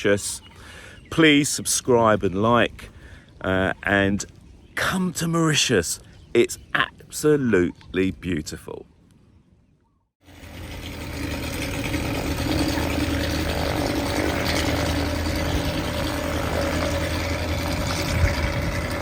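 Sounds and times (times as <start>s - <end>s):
engine running steadily: 10.3s - 19.0s.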